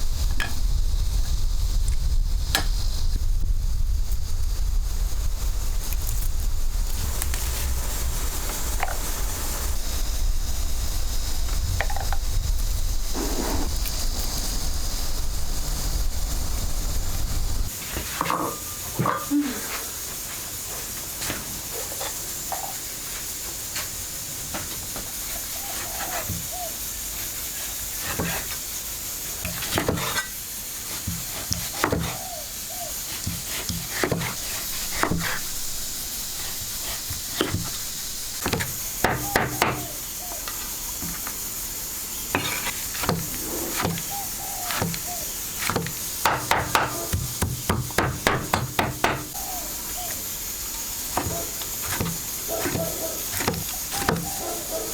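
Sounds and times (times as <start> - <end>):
steady high hiss: 0.0 - 54.9
knocks on wood: 45.7 - 49.3.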